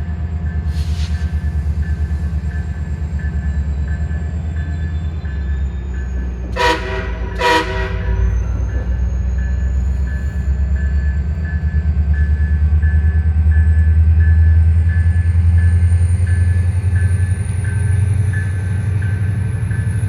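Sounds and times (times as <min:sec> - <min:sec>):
train rumbling: 0:00.0 - 0:20.0
train horn toots: 0:06.5 - 0:08.8.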